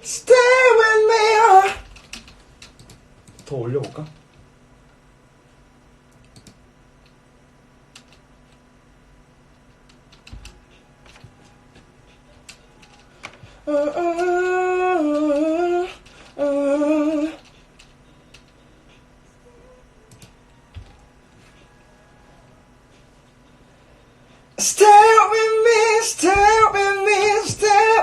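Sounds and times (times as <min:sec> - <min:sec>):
person humming: 0:00.0 - 0:01.9, 0:13.5 - 0:17.4, 0:24.6 - 0:28.0.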